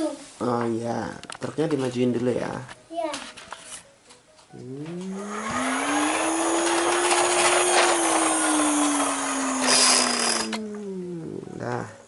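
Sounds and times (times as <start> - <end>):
small electric motor whirring: 5.0 - 10.7.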